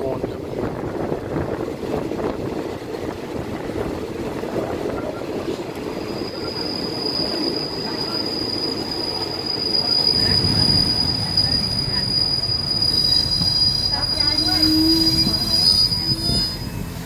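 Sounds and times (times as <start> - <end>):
train carriage rumbling: 0.0 - 17.0
high brake squeal: 5.9 - 17.0.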